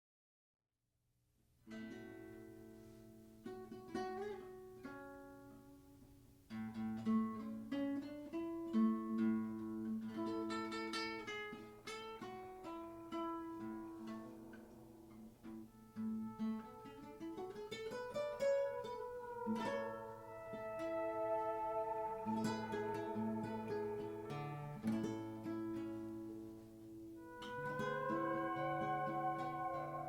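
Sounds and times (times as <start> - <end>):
slide guitar playing: 6.5 - 30.0.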